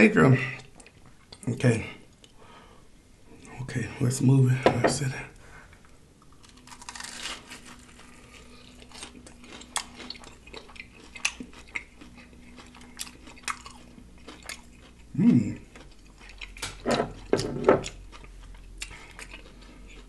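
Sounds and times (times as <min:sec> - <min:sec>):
crunchy chewing: 0:06.2 - 0:20.0
low voice humming: 0:15.2 - 0:15.6.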